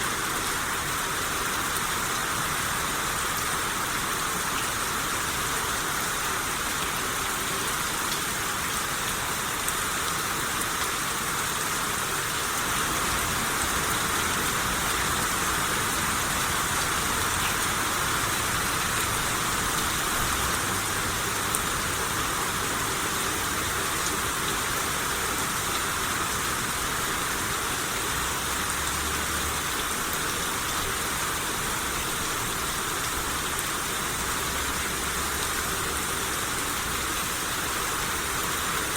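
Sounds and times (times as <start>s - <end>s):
rain shower hissing: 0.0s - 38.9s.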